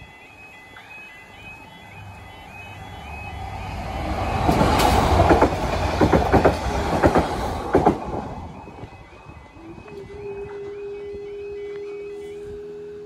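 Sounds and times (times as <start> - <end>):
passing train rumble: 0.0 - 13.0
wheels clacking over rail joints: 3.4 - 8.4.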